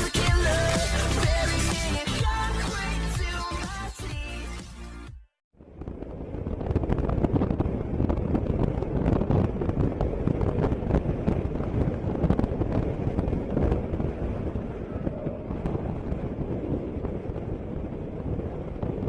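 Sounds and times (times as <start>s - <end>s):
wind buffeting microphone: 5.6s - 19.0s.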